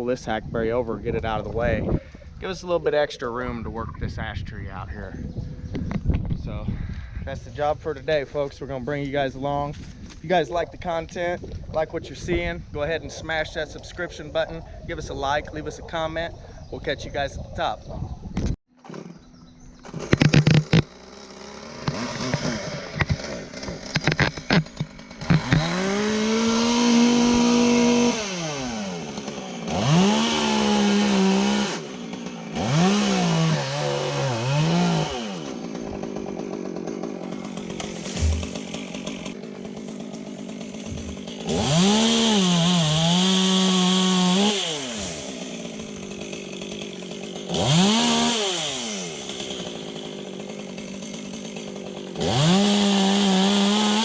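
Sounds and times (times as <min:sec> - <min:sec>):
chainsaw revving and cutting wood: 0:18.8 - 0:54.0
sharp clicks and knocks: 0:19.8 - 0:20.9, 0:21.8 - 0:25.7.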